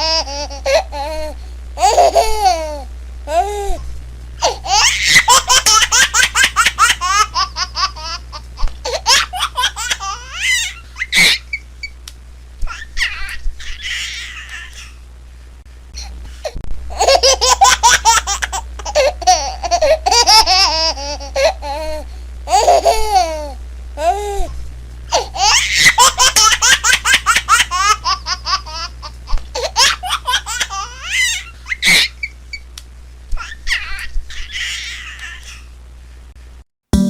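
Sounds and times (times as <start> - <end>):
baby giggling: 0.0 - 3.8, 4.4 - 11.6, 16.9 - 24.4, 25.1 - 32.3.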